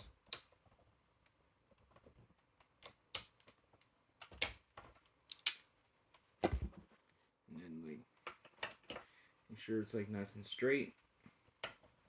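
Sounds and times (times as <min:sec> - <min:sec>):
wire strippers clicking: 0:00.0 - 0:00.6, 0:05.3 - 0:05.6.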